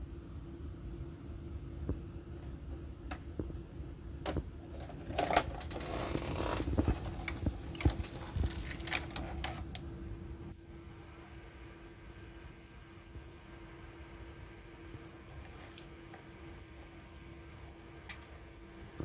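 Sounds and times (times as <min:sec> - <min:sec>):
steady hum: 0:00.0 - 0:19.0
tape transport whirring: 0:04.2 - 0:09.9
tape transport clicking: 0:04.3 - 0:09.9.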